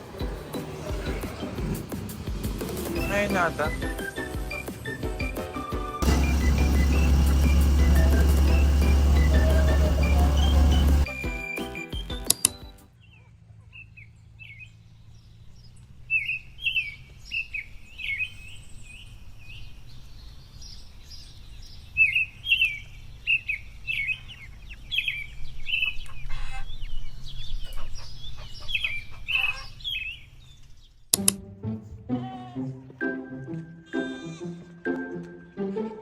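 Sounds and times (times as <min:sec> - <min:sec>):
small birds chirping: 0:00.0 - 0:31.1
low steady hum: 0:06.0 - 0:11.1.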